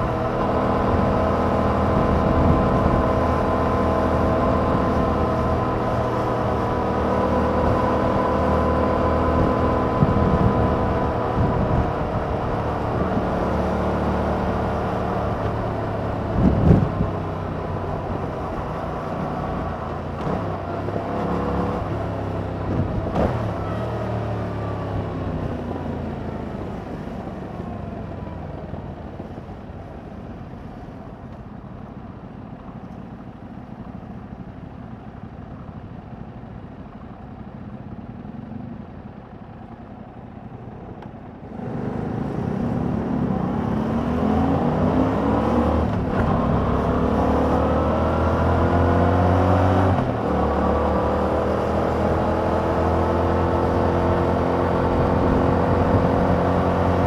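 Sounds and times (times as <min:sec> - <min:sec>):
motorcycle engine revving: 0:00.0 - 0:26.8, 0:41.4 - 0:57.0.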